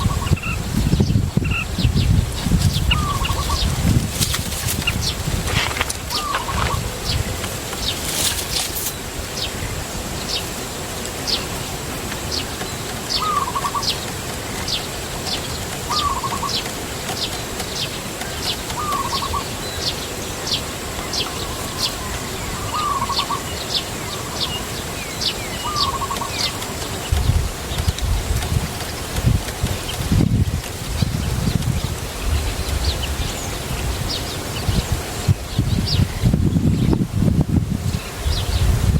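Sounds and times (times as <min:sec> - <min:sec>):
lower bird call: 0:00.0 - 0:03.9, 0:04.8 - 0:08.4, 0:12.3 - 0:27.4.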